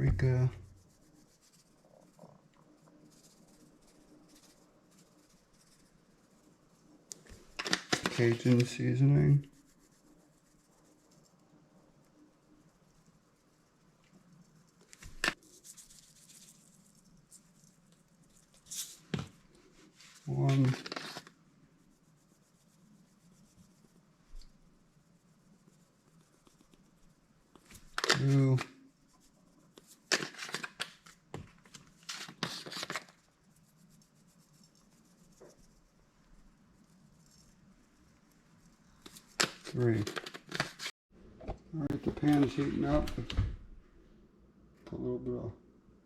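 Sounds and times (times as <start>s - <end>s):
seasoning shaker shaking: 0.8s - 7.0s, 12.2s - 19.1s.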